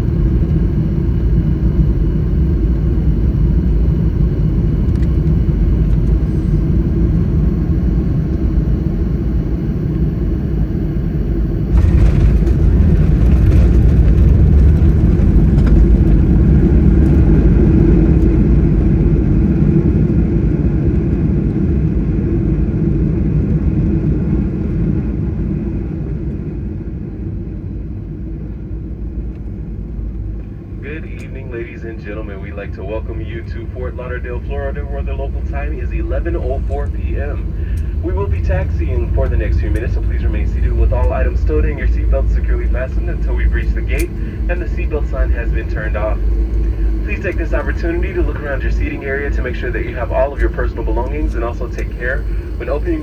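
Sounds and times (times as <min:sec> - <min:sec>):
engine roar on landing: 0:00.0 - 0:21.8, 0:29.3 - 0:53.0
airliner cabin rumble: 0:00.0 - 0:53.0.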